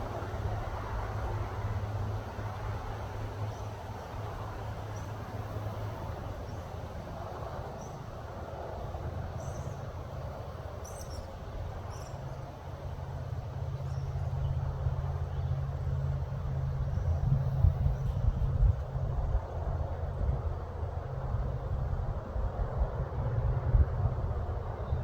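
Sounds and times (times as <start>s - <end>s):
steady low rumble: 12.9s - 25.0s.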